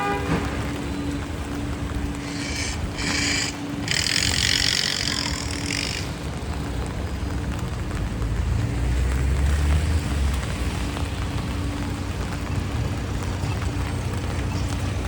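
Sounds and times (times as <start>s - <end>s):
low engine rumble: 0.0s - 15.0s
vehicles passing on wet road: 0.0s - 15.0s
loud hiss: 2.2s - 6.0s.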